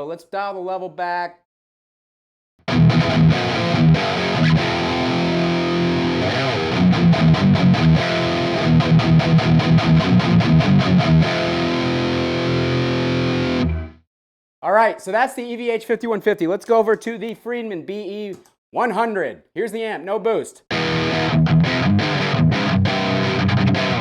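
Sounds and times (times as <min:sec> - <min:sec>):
distorted electric guitar riff: 0:02.7 - 0:14.0, 0:20.7 - 0:24.0.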